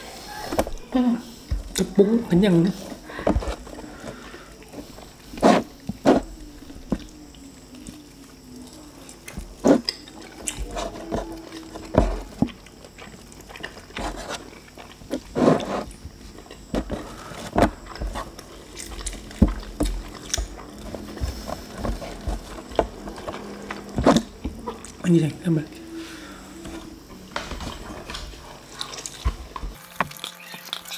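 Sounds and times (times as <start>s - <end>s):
chewing with wet mouth smacks: 12.5s - 16.7s.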